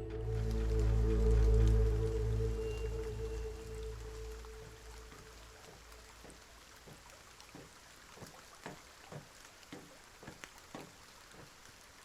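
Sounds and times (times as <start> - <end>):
light rain hiss: 0.0 - 12.0
raindrops tapping: 0.2 - 12.0.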